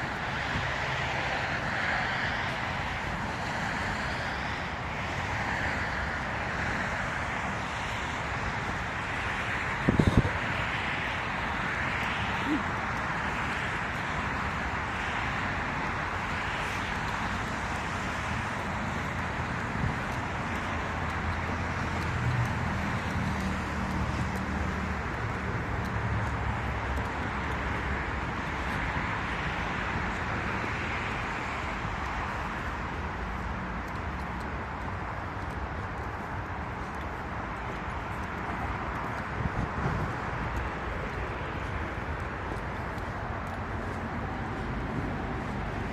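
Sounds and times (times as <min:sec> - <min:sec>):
road traffic noise: 0:00.0 - 0:45.9.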